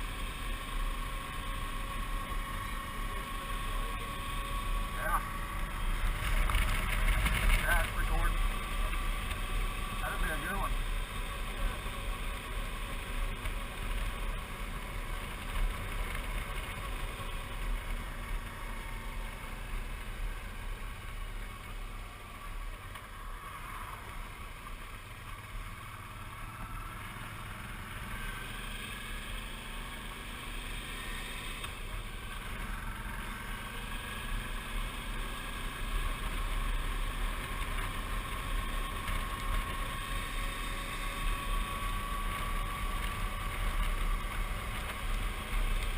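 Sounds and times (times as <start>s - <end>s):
motorcycle engine running: 0.0s - 45.9s
rising engine whine: 0.0s - 45.9s.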